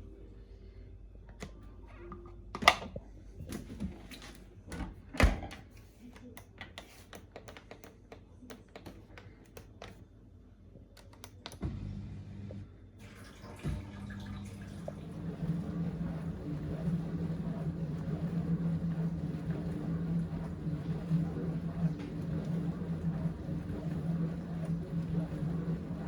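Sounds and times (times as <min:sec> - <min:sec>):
steady low hum: 0:14.6 - 0:26.0.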